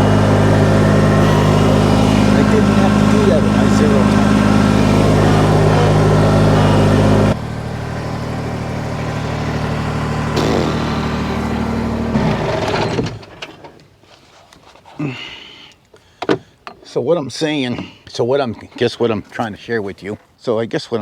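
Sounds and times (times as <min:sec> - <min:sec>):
tractor diesel engine running: 0:00.0 - 0:13.6.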